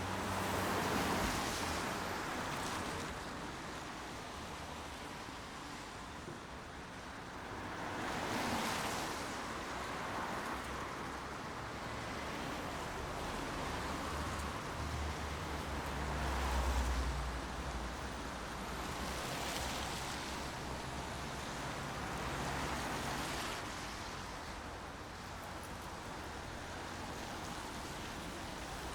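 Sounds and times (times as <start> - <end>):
steady rain: 7.0 - 28.9.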